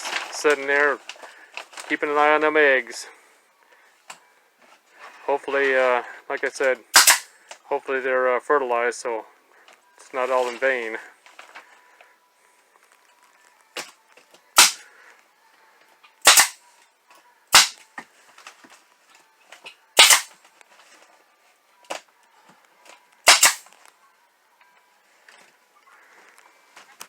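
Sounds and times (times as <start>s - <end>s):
fasteners cracking into wood: 7.0s - 7.3s, 14.6s - 14.8s, 16.3s - 16.6s, 17.6s - 17.8s, 20.0s - 20.4s, 23.3s - 23.7s.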